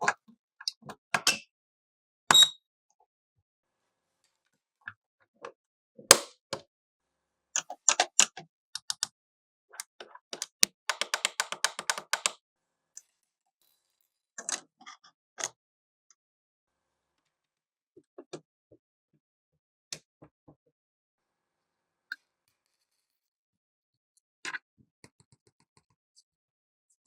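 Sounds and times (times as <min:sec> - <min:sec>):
plastic clicks and taps: 0:10.3 - 0:12.4.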